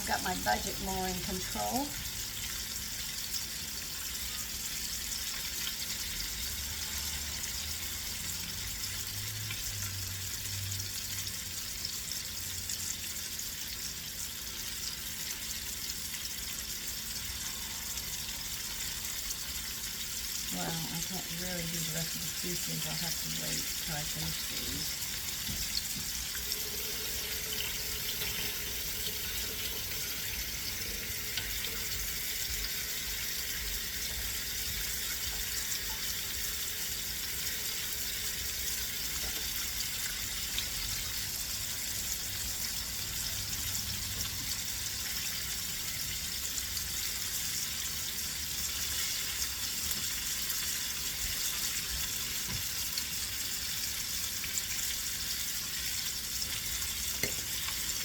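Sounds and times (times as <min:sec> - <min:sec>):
chicken frying in hot oil: 0:00.0 - 0:58.0.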